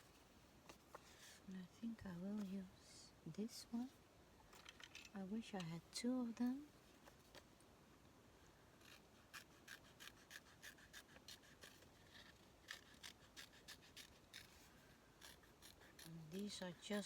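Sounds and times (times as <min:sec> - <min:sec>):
faint paper scratching: 0:08.8 - 0:17.0.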